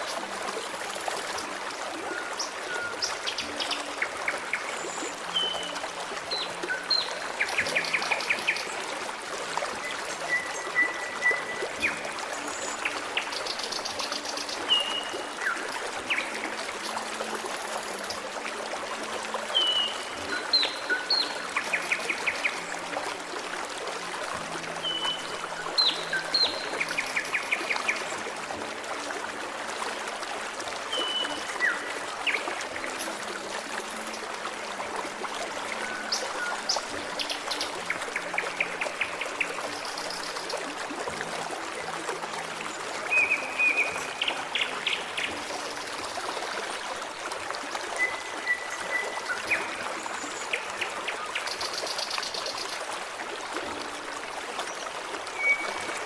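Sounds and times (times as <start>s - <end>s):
stream trickling and babbling: 0.0s - 56.0s.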